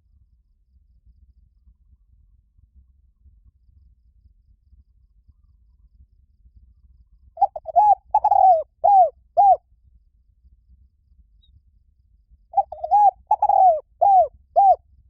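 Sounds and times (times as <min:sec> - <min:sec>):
dove cooing: 0:07.4 - 0:09.6, 0:12.6 - 0:14.8.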